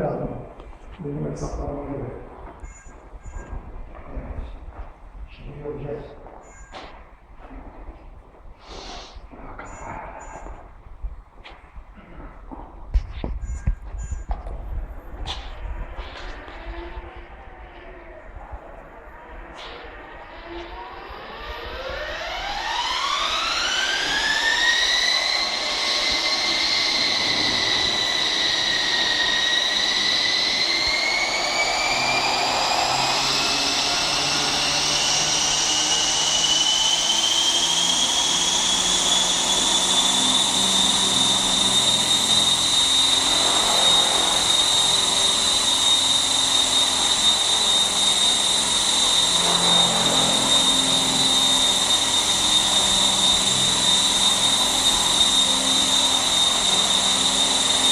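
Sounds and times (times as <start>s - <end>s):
model helicopter high whine: 11.6s - 57.9s.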